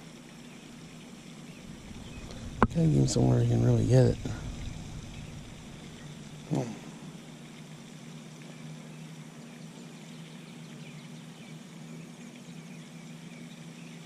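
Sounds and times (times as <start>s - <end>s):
small birds chirping: 0.4s - 6.6s
steady low hum: 0.8s - 7.6s.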